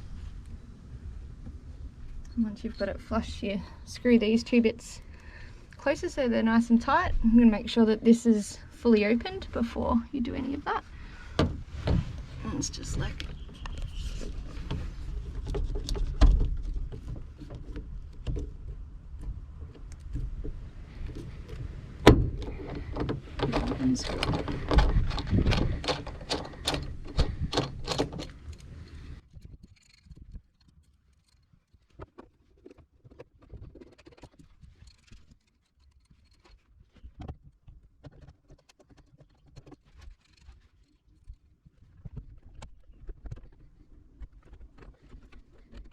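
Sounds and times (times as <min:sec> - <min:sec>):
hand tools clicking and knocking: 0:22.4 - 0:28.7.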